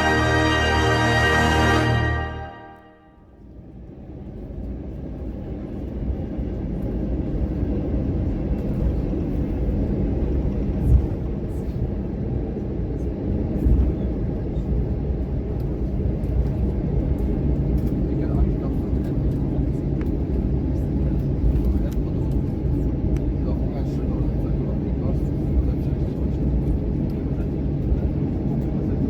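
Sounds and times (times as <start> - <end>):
aircraft cabin rumble: 3.6 - 29.0.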